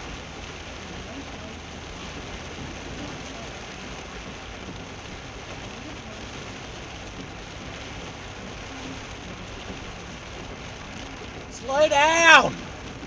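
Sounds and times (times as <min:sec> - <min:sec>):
heavy rain drumming on car: 0:00.0 - 0:13.0
road and engine rumble: 0:00.0 - 0:13.0.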